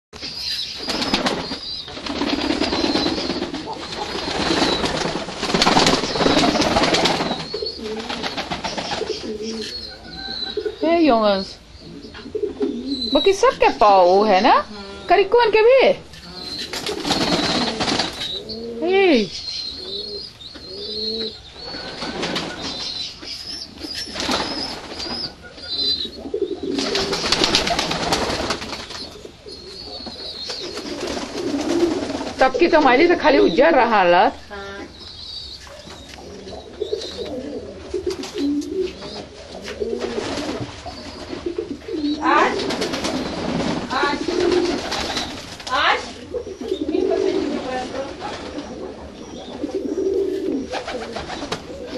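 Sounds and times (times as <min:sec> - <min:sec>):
loud noisy rustling: 0:00.2 - 0:09.1
doves cooing: 0:00.4 - 0:51.9.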